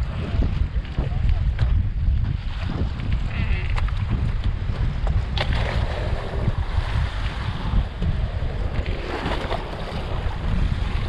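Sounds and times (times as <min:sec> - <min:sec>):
wind buffeting microphone: 0:00.0 - 0:11.0
waves washing: 0:08.5 - 0:11.0.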